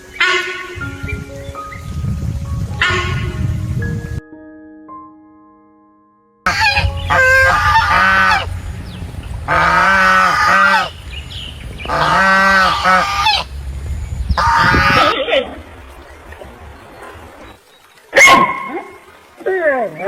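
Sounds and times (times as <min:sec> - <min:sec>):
birds honking: 0:00.0 - 0:02.0, 0:02.8 - 0:03.7, 0:06.5 - 0:17.7.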